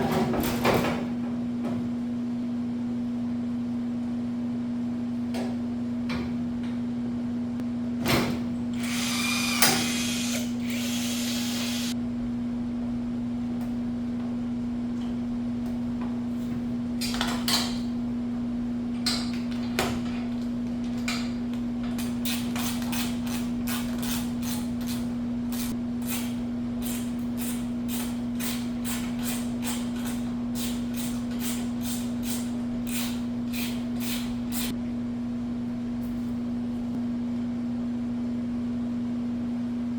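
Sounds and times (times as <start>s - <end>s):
power tool running: 8.7s - 12.0s.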